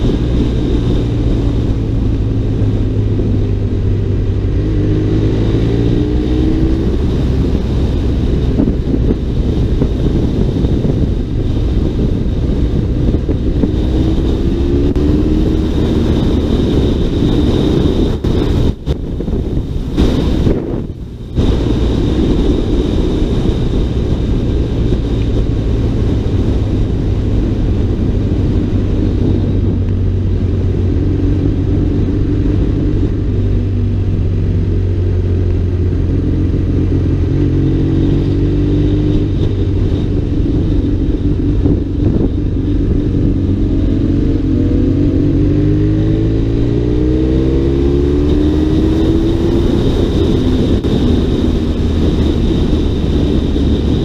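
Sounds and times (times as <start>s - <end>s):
motorcycle engine droning: 0.0s - 54.0s.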